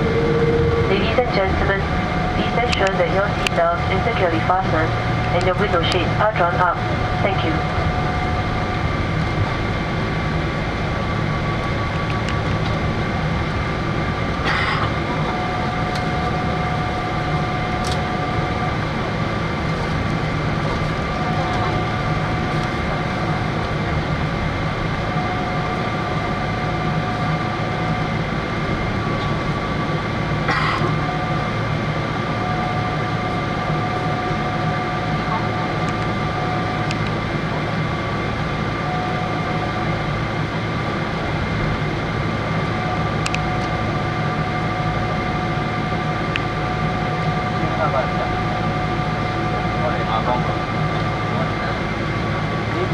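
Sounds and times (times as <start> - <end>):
aircraft cabin engine hum: 0.0 - 52.9
steady whine: 0.0 - 52.9.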